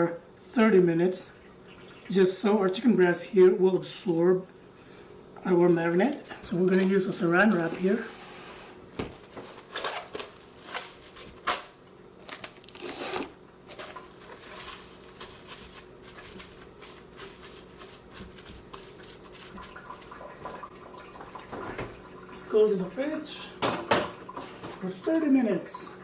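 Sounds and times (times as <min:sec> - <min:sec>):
cling wrap crinkling: 0:09.0 - 0:20.3.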